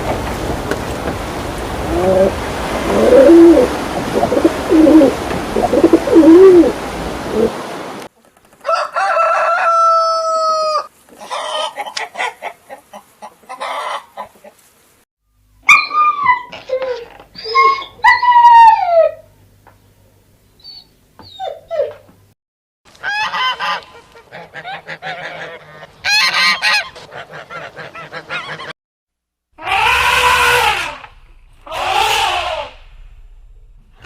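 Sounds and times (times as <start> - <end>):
low cooing bird calls: 1.8 - 7.6
long crow-like bird call: 29.6 - 33.0
short falling bird calls: 29.6 - 33.2.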